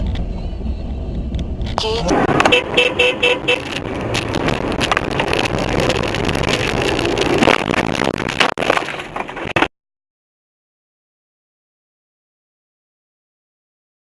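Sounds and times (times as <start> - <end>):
road vehicle rumble: 0.0 - 9.7
knocks and clicks: 3.4 - 9.7.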